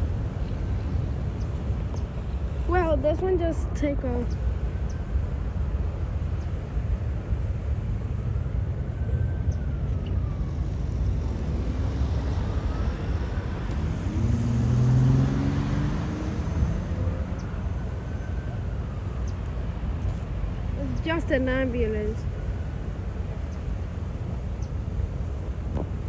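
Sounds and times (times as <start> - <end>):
traffic rumble: 0.0 - 26.0
jet departing: 1.8 - 26.0
distant ambulance siren wailing: 2.7 - 25.7
vehicle engine passing: 10.2 - 22.0.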